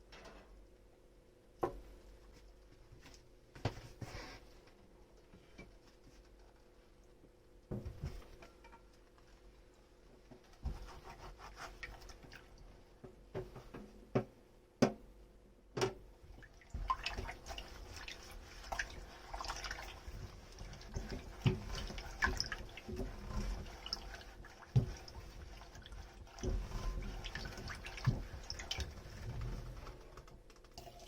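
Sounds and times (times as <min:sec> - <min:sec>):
water splashing and dripping: 0:16.3 - 0:31.0.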